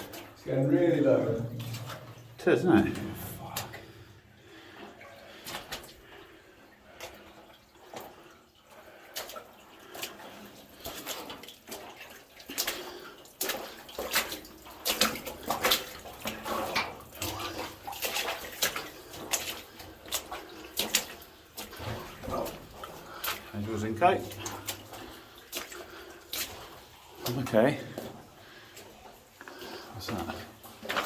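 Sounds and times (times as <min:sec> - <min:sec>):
footsteps splashing through water: 0:00.0 - 0:31.0.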